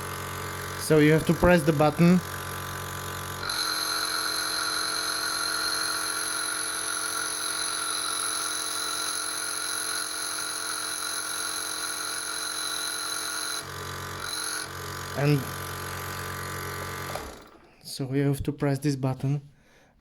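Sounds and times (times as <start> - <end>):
compressor hum: 0.0 - 4.6, 13.6 - 17.8.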